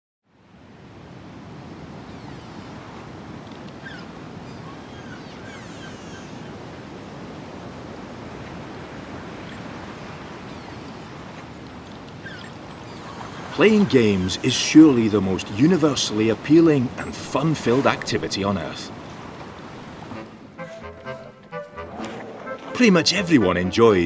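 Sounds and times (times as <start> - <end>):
faint high chirping animal calls: 2.1 - 2.8, 3.8 - 6.7, 9.5 - 16.6.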